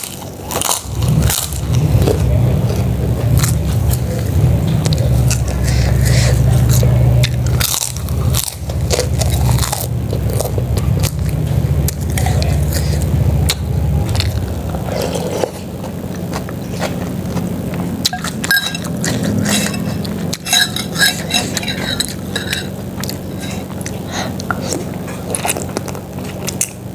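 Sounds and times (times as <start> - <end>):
biting and chewing: 0.0 - 26.9
low steady rumble: 0.0 - 26.9
spoon scraping a soup bowl: 18.1 - 22.7.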